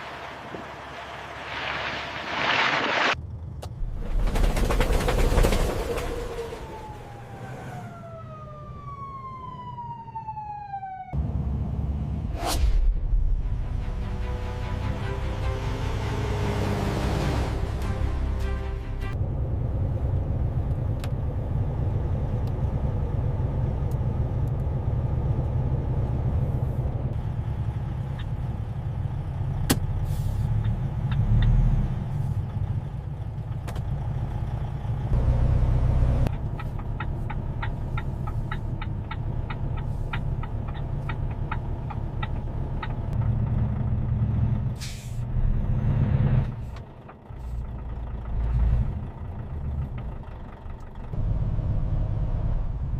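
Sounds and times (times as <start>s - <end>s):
truck engine rumbling: 0.0s - 52.9s
ticks: 36.3s - 43.3s
air brake hiss: 44.8s - 45.2s.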